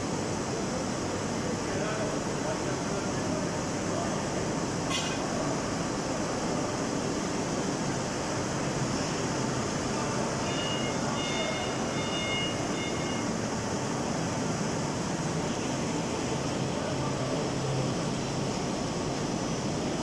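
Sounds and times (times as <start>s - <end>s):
faint high whining tones: 8.9s - 18.2s.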